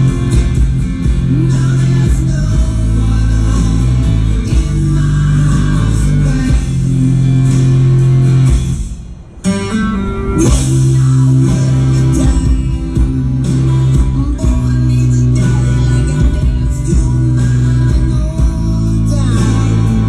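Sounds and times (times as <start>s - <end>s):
rock music with guitar and bass: 0.0s - 20.0s.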